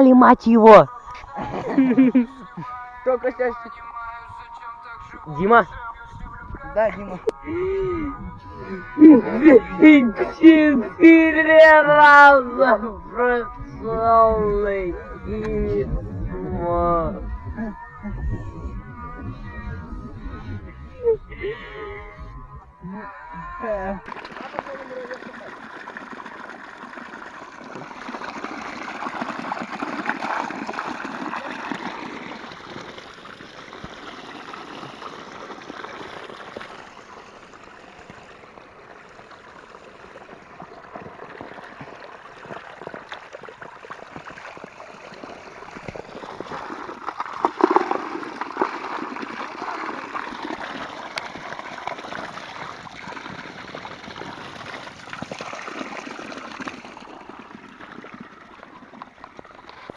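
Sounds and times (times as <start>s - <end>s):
stream water gurgling: 7.2s - 59.9s.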